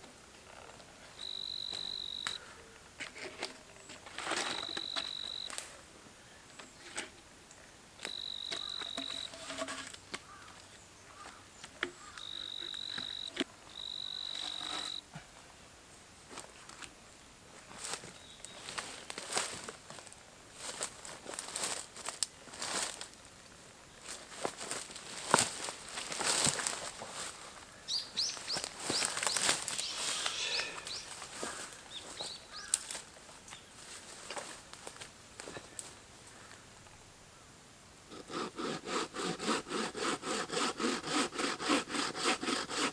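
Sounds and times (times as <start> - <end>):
insect trilling: 1.2 - 2.4, 4.6 - 5.6, 8.0 - 9.5, 12.1 - 15.0, 28.3 - 31.7
small bird chirping: 8.1 - 9.4, 27.9 - 32.9.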